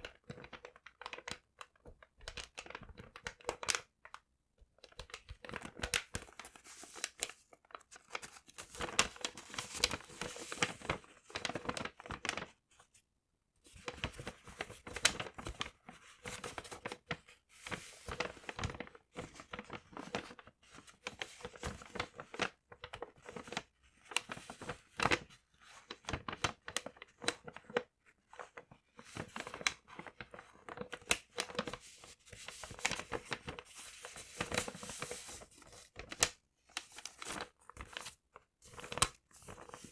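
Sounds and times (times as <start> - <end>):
paper crumpling and tearing: 30.9 - 39.9.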